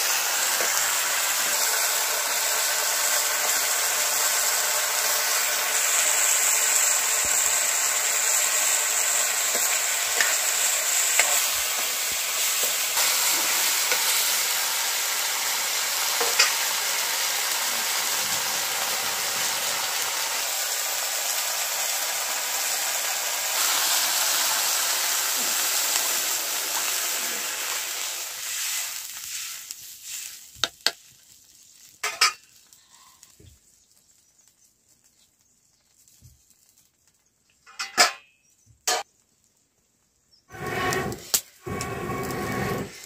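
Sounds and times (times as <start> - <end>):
vegetables sizzling in oil: 0.0 - 37.8, 38.5 - 43.0
utensils clinking against pan: 16.2 - 16.6, 32.0 - 32.5, 37.7 - 39.1.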